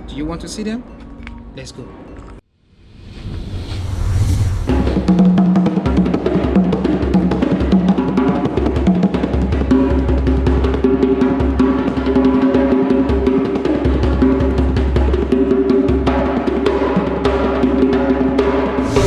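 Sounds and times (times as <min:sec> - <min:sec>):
fast busy drumming: 0:05.2 - 0:18.8.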